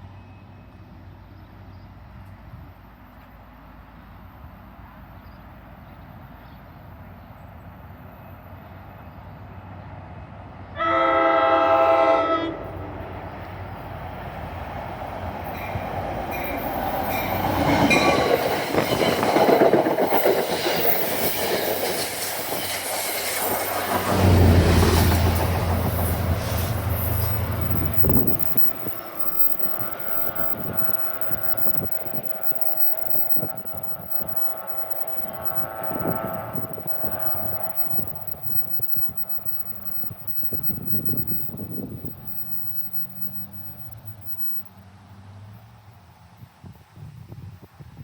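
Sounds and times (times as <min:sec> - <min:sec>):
low locomotive drone: 0:00.0 - 0:47.6
train horn blast: 0:10.8 - 0:13.0, 0:25.6 - 0:40.4
train wheels clacking on rails: 0:15.0 - 0:44.6.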